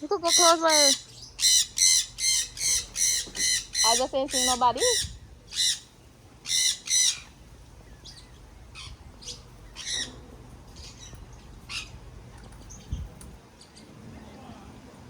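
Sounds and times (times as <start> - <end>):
parrots squawking: 0.0 - 7.4, 8.0 - 12.0.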